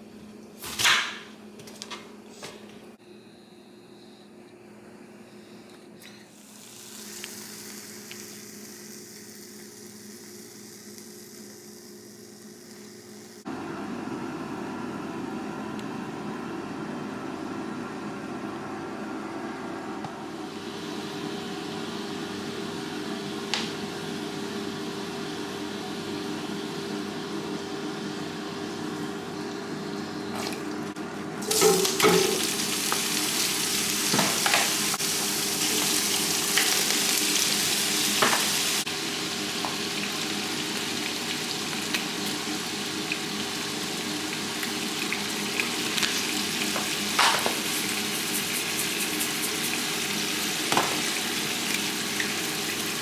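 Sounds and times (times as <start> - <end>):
food sizzling in a pan: 6.3 - 13.5, 31.4 - 53.0.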